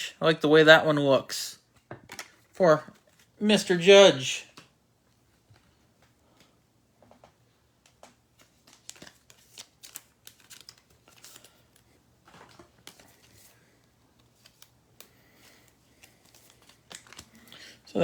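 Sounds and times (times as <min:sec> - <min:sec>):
trading cards rustling and clicking: 0:05.6 - 0:17.8.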